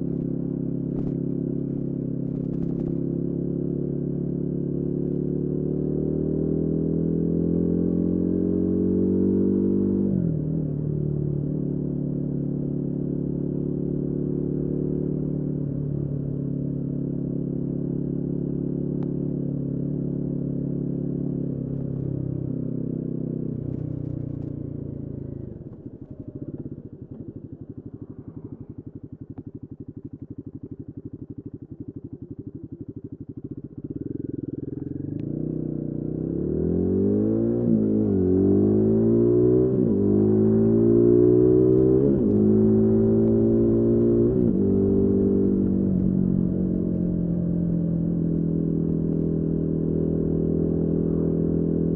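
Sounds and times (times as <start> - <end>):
motorcycle engine revving: 19.8 - 51.9.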